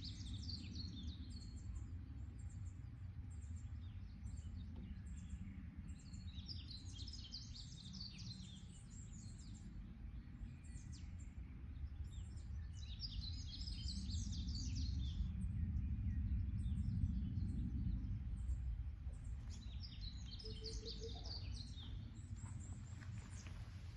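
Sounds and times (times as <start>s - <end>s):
low background rumble: 7.5s - 23.9s
songbird chirping: 19.1s - 23.9s.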